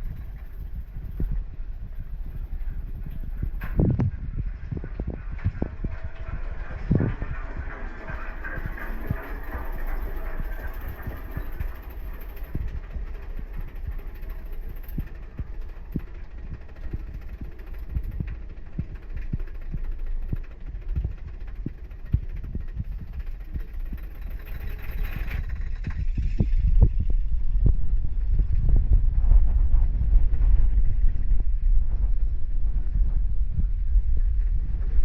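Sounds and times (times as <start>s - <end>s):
rush of wind: 0.0s - 9.8s, 19.7s - 35.0s
roller coaster rumbling on track: 0.0s - 35.0s
wheels clacking on track: 5.8s - 26.2s.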